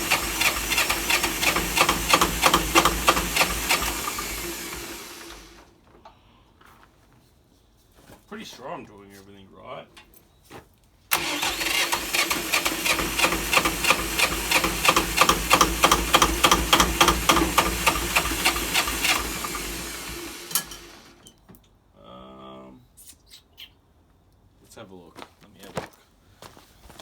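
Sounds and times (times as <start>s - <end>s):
diesel engine starter cranking: 0.0s - 5.7s, 11.1s - 21.3s.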